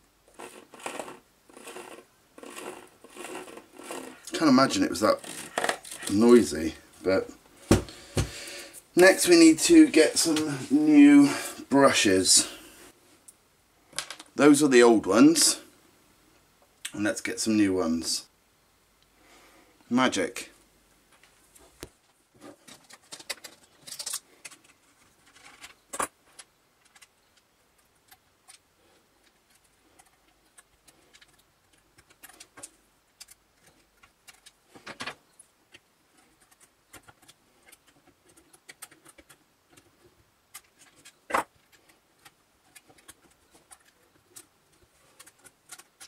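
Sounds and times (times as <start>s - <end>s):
small metal parts clicking: 22.7s - 27.2s, 29.2s - 34.6s, 45.1s - 46.0s.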